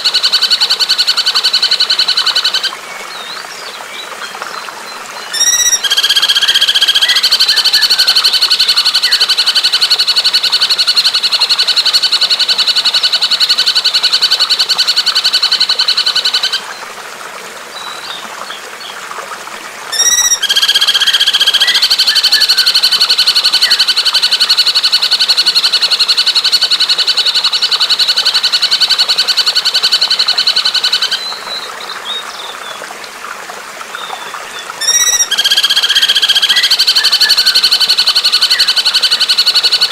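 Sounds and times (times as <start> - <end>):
faint trickle of water: 0.0 - 39.9
songbird fast trills: 5.3 - 13.8, 19.9 - 25.4, 34.8 - 39.9.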